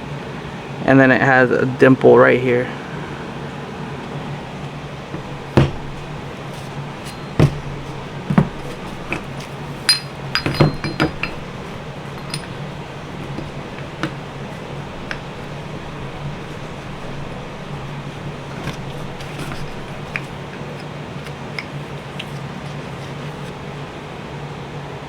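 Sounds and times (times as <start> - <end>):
steady low hum: 2.5 - 24.6
metal engine parts clinking: 4.6 - 23.6.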